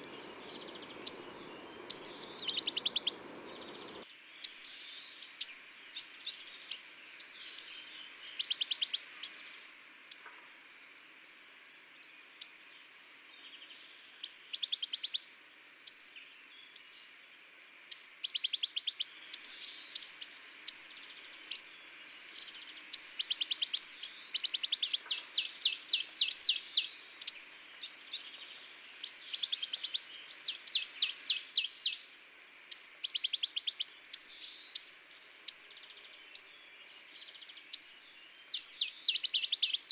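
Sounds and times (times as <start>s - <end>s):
bird trills: 0.0s - 4.0s
songbirds chirping: 0.0s - 5.2s, 16.8s - 39.9s.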